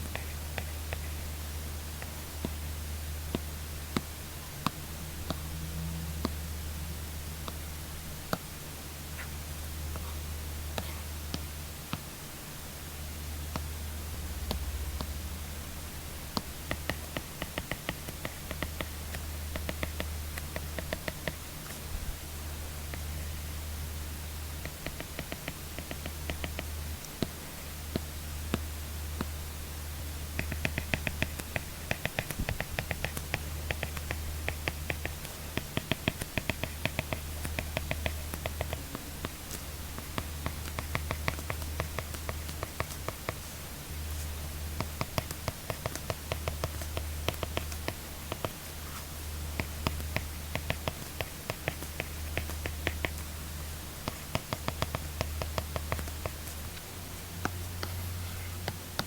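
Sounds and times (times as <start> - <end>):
stylus tapping and scratching on screen: 0.0 - 2.7, 9.2 - 12.1, 13.5 - 15.3, 16.2 - 22.0, 22.6 - 23.5, 24.4 - 29.4, 30.0 - 59.0
steady low hum: 0.0 - 59.0.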